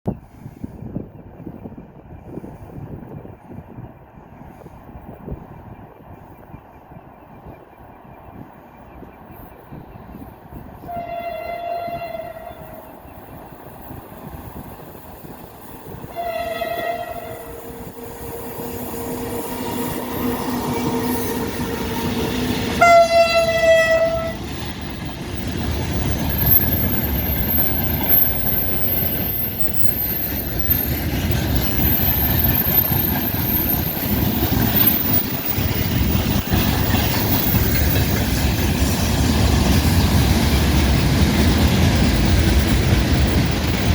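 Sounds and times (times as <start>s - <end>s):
train rolling past: 1.2s - 43.9s
train horn blasts: 10.8s - 12.9s, 16.0s - 18.7s, 19.4s - 24.6s.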